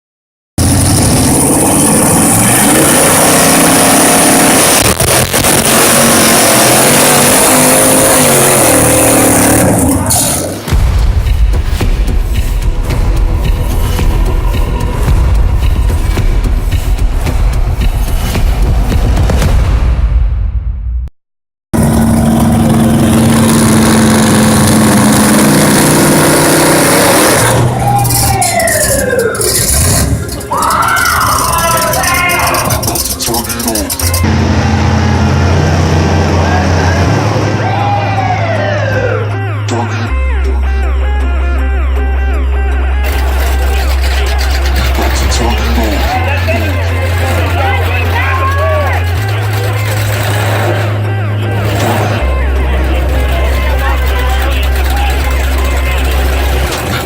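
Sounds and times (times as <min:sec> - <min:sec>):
truck engine revving hard: 0:00.6 - 0:11.2, 0:21.8 - 0:38.7, 0:43.0 - 0:57.0.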